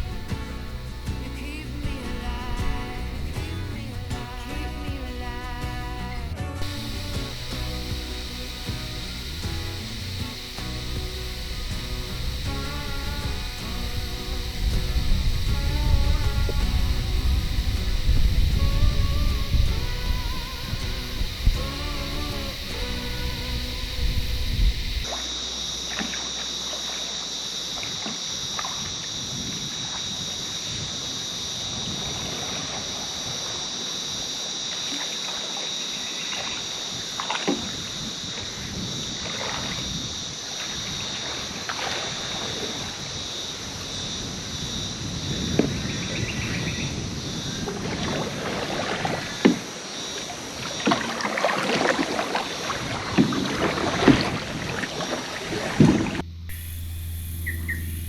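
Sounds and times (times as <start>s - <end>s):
high-pitched drone: 0.0s - 28.7s, 56.2s - 58.0s
paddle splashing in water: 34.7s - 37.9s, 39.2s - 40.0s, 40.6s - 43.1s, 47.7s - 56.2s.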